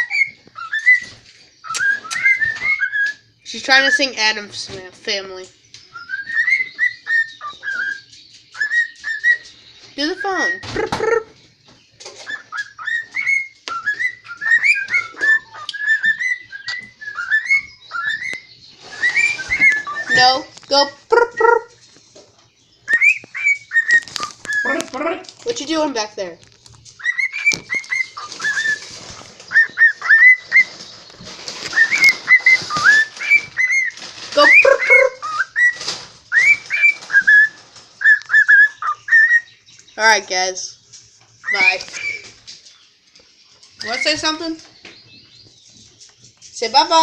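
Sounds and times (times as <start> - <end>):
cockatiel whistling chirped notes: 0.0 - 3.2, 5.8 - 10.7, 12.2 - 20.4, 22.8 - 24.8, 27.0 - 30.8, 31.6 - 39.6, 41.4 - 42.3.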